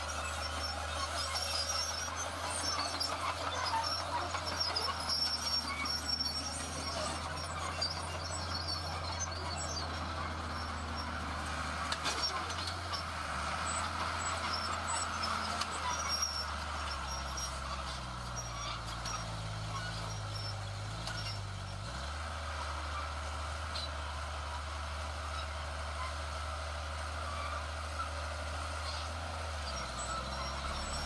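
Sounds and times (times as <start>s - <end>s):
diesel engines of heavy machinery: 0.0s - 31.0s.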